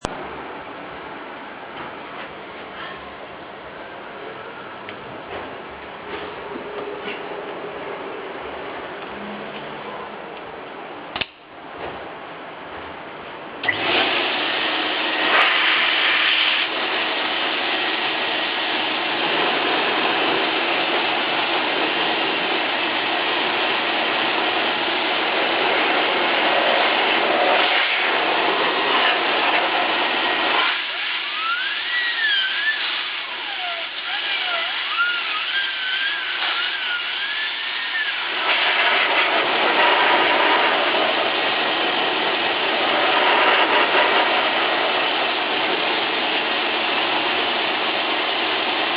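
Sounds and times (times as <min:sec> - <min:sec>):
vacuum cleaner blowing air: 0:13.6 - 0:48.9
wavering whistle: 0:30.9 - 0:38.2.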